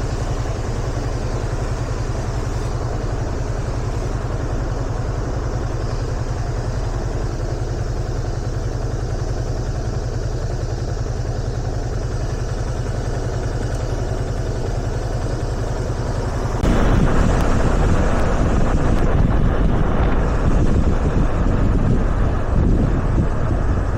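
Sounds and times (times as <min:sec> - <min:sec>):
motorcycle engine running: 0:00.0 - 0:23.9
wind noise on microphone: 0:16.0 - 0:23.9.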